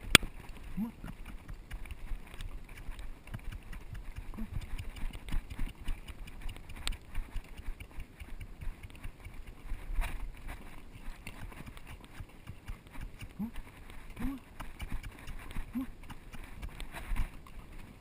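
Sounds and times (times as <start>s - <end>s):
horse hooves on rocky ground: 0.0s - 18.0s.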